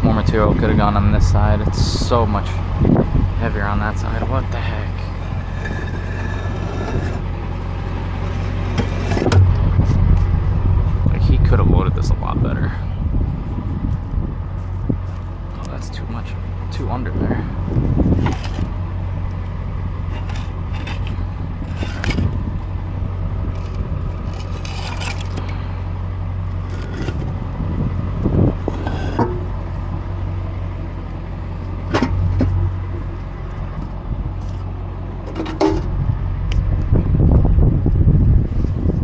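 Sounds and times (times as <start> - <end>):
vehicle engine running: 0.0 - 39.0
knocks and scrapes: 3.9 - 10.3, 13.4 - 16.0, 18.1 - 18.8, 20.0 - 22.7, 23.4 - 25.6, 26.5 - 29.9, 31.8 - 33.1, 33.7 - 35.9
rough crunching: 4.0 - 9.5, 13.3 - 16.0, 18.1 - 19.0, 20.0 - 25.8, 26.4 - 30.0.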